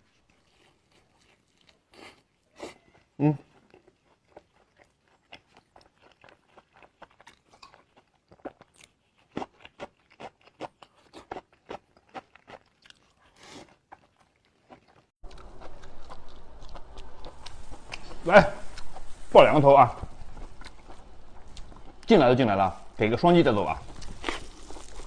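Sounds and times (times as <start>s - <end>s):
crunchy chewing of fried food: 0.0s - 19.2s, 19.9s - 25.0s
steady hiss and hum: 16.2s - 25.0s.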